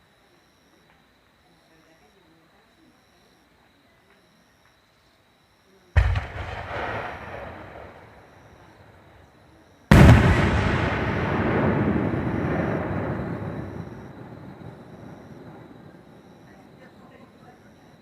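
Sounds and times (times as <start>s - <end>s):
firework shells booming: 6.0s - 9.3s, 9.9s - 16.4s
rolling echo: 6.0s - 16.8s.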